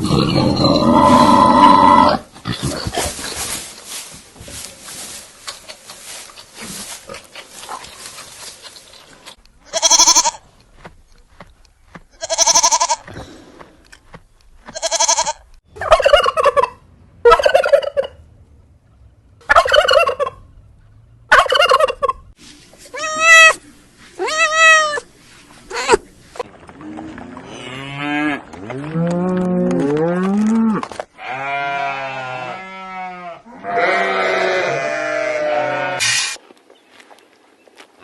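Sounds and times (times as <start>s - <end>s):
turkey gobbling: 15.8s - 18.2s, 19.4s - 20.4s, 21.3s - 22.2s.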